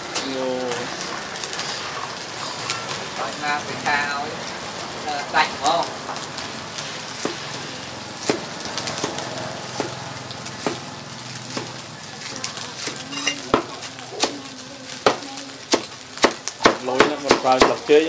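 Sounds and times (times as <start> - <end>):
food frying with sizzle: 0.0 - 18.0
utensils clinking on pots: 11.5 - 14.4.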